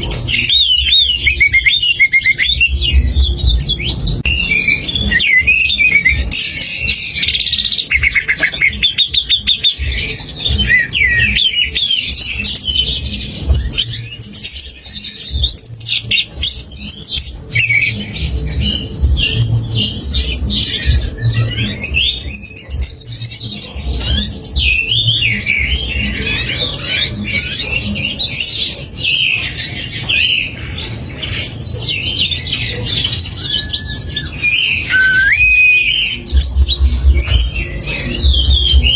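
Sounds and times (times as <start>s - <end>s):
songbirds singing: 0.0s - 38.9s
low pulsing beat: 2.5s - 14.6s, 18.2s - 23.0s, 34.9s - 38.9s.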